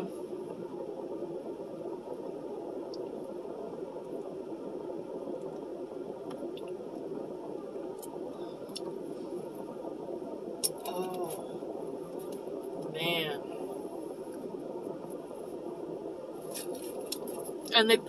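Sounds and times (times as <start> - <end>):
steady hum inside a car: 0.0 - 18.0.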